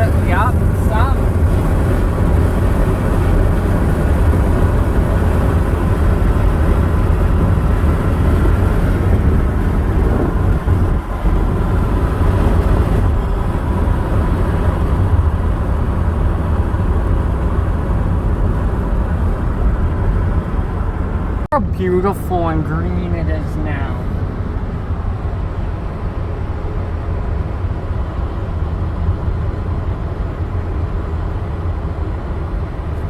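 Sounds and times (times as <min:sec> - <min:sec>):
car tyre and engine rumble: 0:00.0 - 0:33.0.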